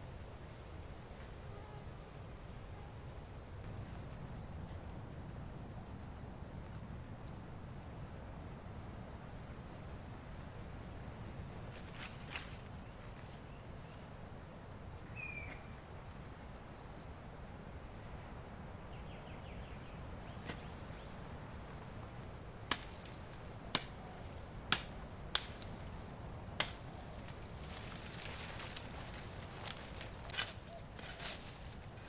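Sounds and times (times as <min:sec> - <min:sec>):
high insect buzz: 0:00.0 - 0:08.7, 0:09.3 - 0:32.0.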